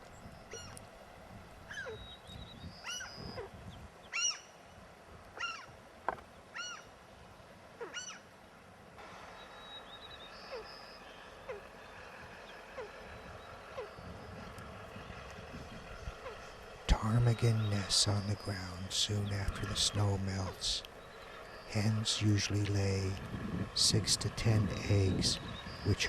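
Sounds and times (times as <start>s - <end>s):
ptarmigan croaking calls: 11.4s - 26.0s.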